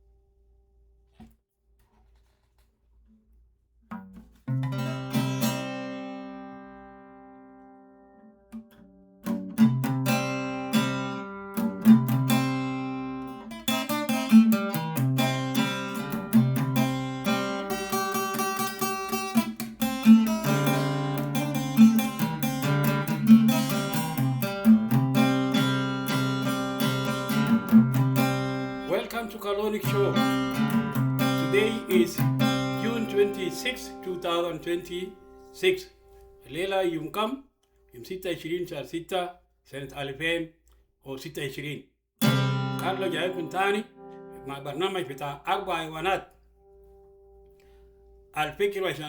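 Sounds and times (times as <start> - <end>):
acoustic guitar strumming: 3.9 - 36.8, 42.2 - 48.1.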